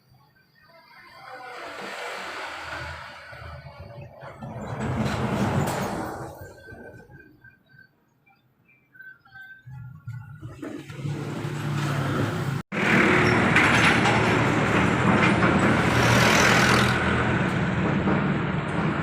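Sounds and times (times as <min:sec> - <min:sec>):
truck engine running: 0:10.9 - 0:19.0.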